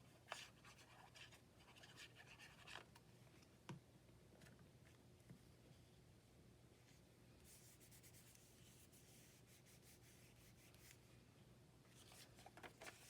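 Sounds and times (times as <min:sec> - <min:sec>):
paper rubbing and rustling: 0:12.0 - 0:13.0.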